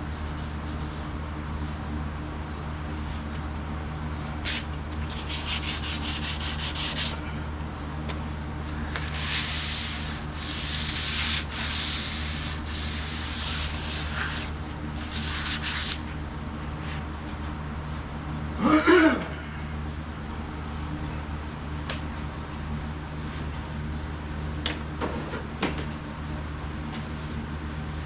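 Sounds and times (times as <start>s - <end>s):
hand sanding sheet metal: 0.0s - 1.1s, 4.5s - 7.2s, 9.0s - 16.0s
steady low hum: 0.0s - 28.0s.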